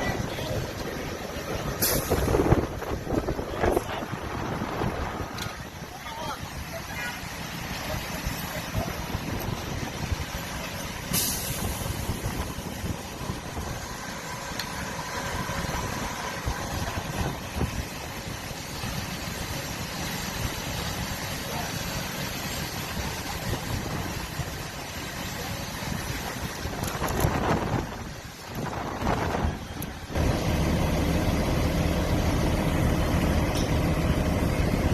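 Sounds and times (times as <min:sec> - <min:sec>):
fire engine running: 0:00.0 - 0:34.9
air brake hiss: 0:01.8 - 0:02.4, 0:11.1 - 0:12.1.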